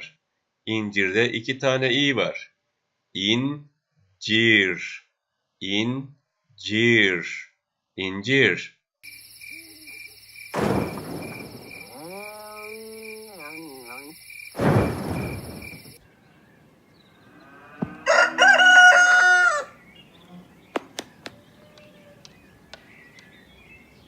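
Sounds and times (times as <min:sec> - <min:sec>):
rooster crowing: 0:11.7 - 0:14.1, 0:17.6 - 0:19.8
short rushing noises: 0:14.6 - 0:16.0.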